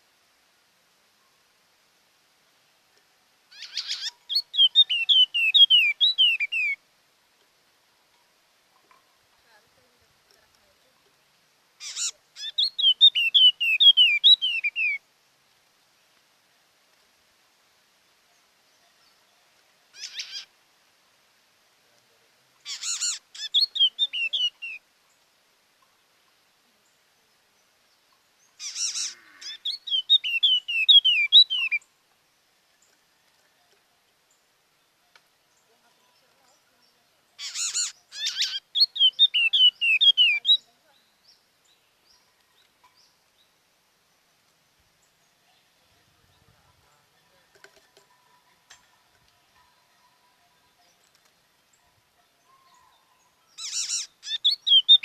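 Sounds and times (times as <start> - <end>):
faint background hiss: 0.0 - 55.0
bird harsh call: 3.5 - 6.8, 11.8 - 15.0, 19.9 - 20.5, 22.6 - 24.8, 28.6 - 31.8, 37.4 - 40.6, 53.6 - 55.0
faint bird chirps: 3.5 - 6.8, 11.8 - 15.1, 18.2 - 20.5, 22.1 - 25.2, 25.9 - 55.0
songbird trilling and whistling: 3.5 - 6.8, 11.8 - 15.0, 20.0 - 20.5, 22.6 - 24.8, 28.6 - 31.9, 37.4 - 40.7, 52.7 - 55.0.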